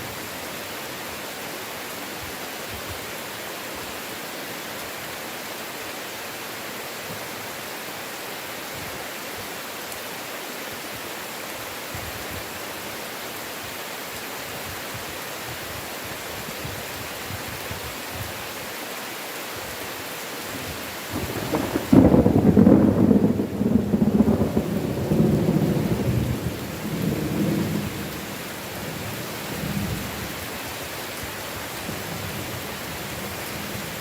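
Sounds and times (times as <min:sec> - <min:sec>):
heavy rain hissing: 0:00.0 - 0:34.0
thunder rumble: 0:21.1 - 0:28.3.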